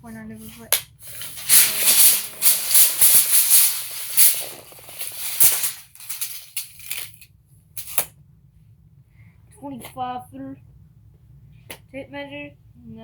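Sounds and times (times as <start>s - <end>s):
tape measure blade rattling scrape: 1.0s - 7.2s, 7.8s - 8.1s
tape measure clicks: 1.1s - 7.2s.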